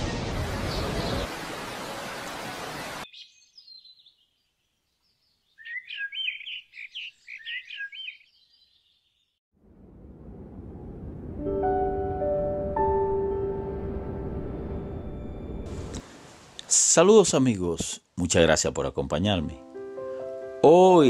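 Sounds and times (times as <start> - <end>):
small birds chirping: 3.0 - 9.4.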